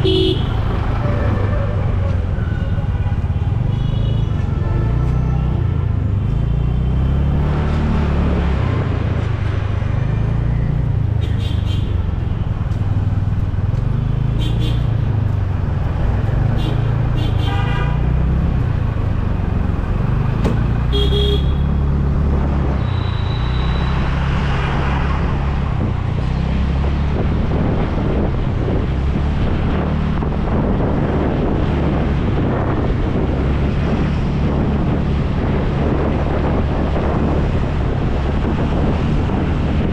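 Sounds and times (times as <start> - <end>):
vehicle horns honking: 0.0 - 6.0, 16.6 - 18.2, 20.8 - 21.8, 22.8 - 24.0
road traffic: 0.0 - 39.9
wind rumble on microphone: 7.0 - 13.9, 21.8 - 39.9.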